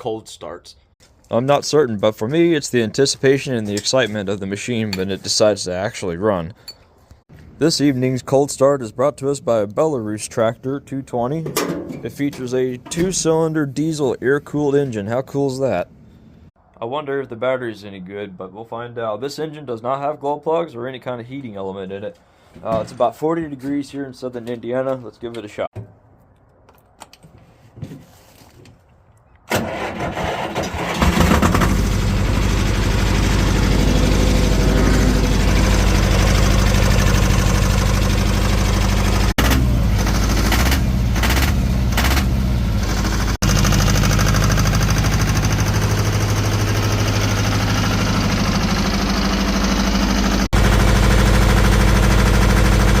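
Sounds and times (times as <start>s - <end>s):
starter cranking: 29.5s - 32.0s, 34.2s - 50.8s
diesel tractor engine running: 29.6s - 53.0s.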